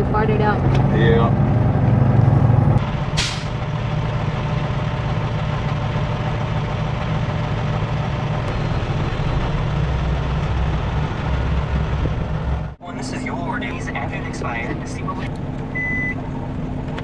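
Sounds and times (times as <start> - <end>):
diesel truck engine running: 0.0 - 17.0
short hiss: 3.2 - 3.5.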